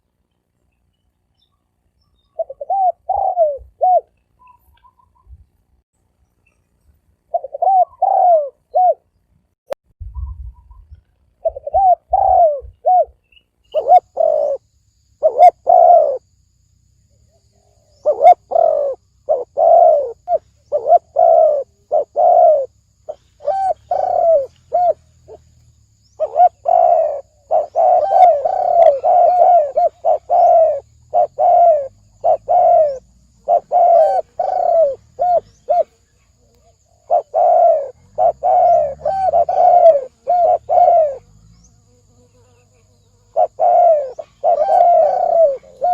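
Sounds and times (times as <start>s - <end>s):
dove cooing: 2.4s - 5.3s, 7.3s - 9.1s, 11.4s - 14.6s, 15.2s - 16.3s, 17.5s - 25.5s, 26.2s - 41.4s, 42.5s - 45.9s.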